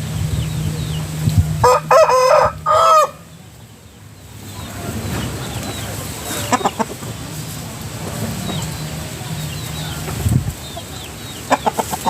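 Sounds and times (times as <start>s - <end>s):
rooster crowing: 1.6s - 3.3s.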